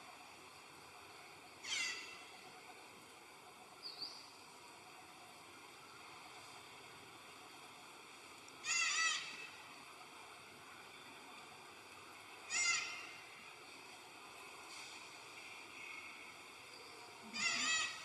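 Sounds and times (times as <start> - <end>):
faint steady hiss: 0.0 - 18.0
baby monkey crying: 17.3 - 18.0.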